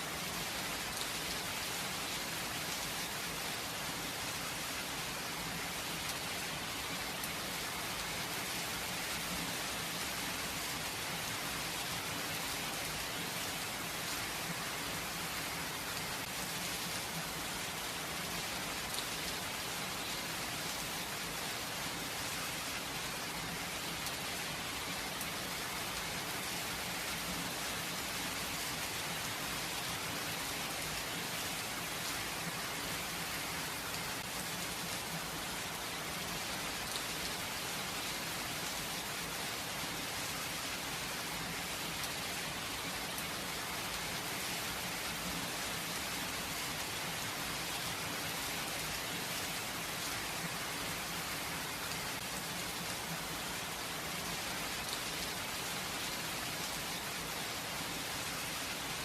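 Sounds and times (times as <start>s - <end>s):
steady rain pattering: 0.0s - 59.0s.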